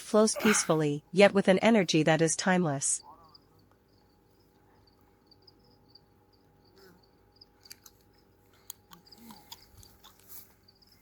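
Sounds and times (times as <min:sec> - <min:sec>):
faint cricket chirping: 0:02.5 - 0:11.0.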